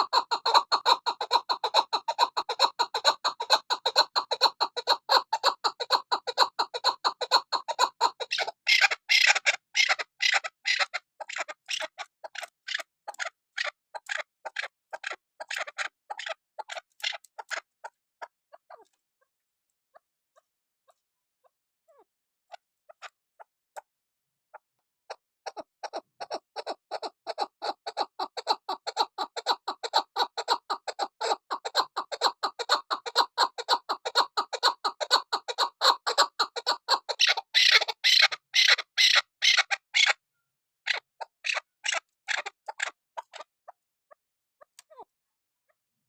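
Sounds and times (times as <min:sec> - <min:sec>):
partridge rapid clucking call: 0:00.0 - 0:19.0, 0:25.1 - 0:40.2, 0:40.8 - 0:43.8.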